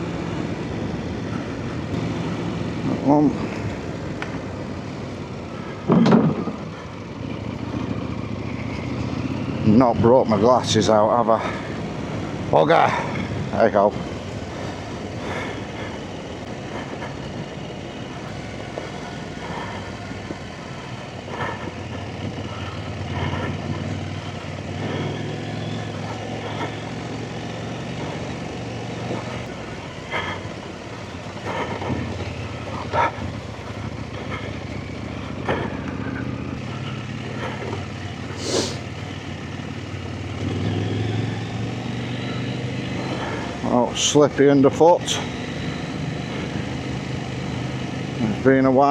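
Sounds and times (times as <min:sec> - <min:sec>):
motorcycle engine running: 0:00.0 - 0:48.9
knocks and clatters: 0:05.6 - 0:07.9
short hiss: 0:38.4 - 0:38.8.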